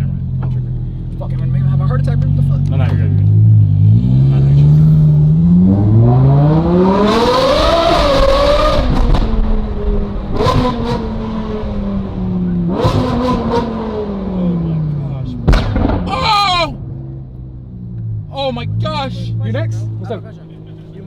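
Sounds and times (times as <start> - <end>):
sports car engine revving: 0.0 - 16.1
exhaust pops: 15.4 - 16.3.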